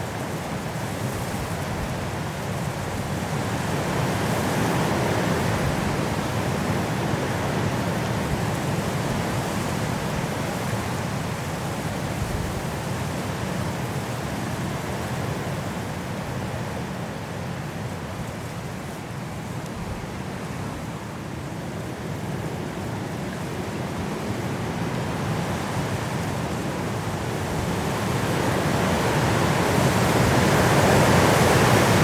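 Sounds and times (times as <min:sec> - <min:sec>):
high winds through trees: 0:00.0 - 0:32.0.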